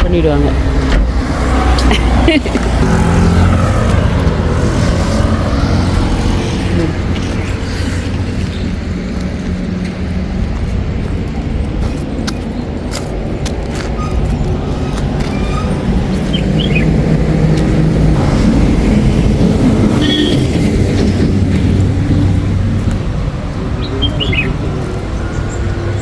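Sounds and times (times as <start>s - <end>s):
car engine and road noise: 0.0s - 26.0s
bird chirps: 16.1s - 16.9s, 23.8s - 24.6s.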